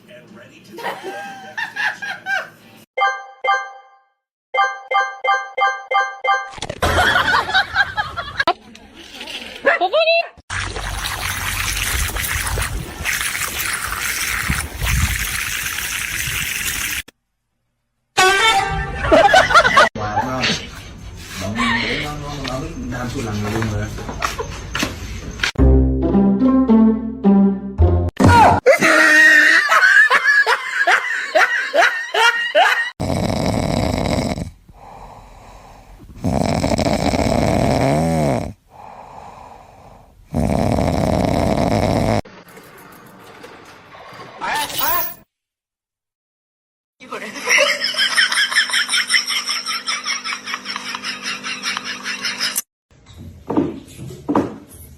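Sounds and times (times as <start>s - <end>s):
loud snoring: 33.0s - 42.3s.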